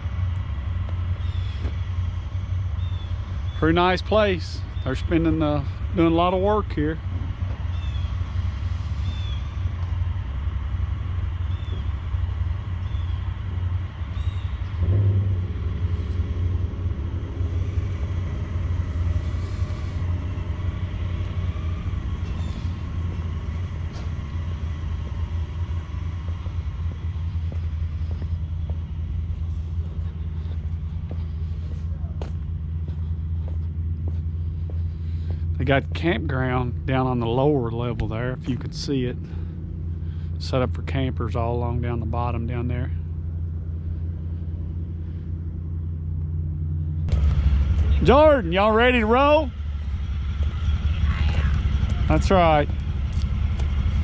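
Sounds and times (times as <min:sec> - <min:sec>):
vehicle engine rumbling and revving: 0:00.0 - 0:54.0.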